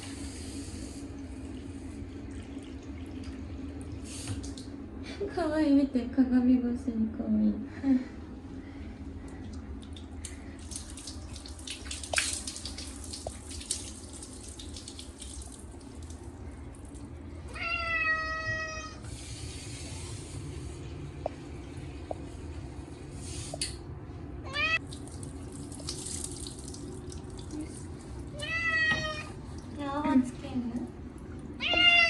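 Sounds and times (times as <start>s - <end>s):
running water: 9.2s - 20.5s, 24.5s - 32.0s
cat meowing: 17.5s - 19.0s, 24.4s - 24.8s, 28.3s - 29.4s, 31.6s - 32.0s.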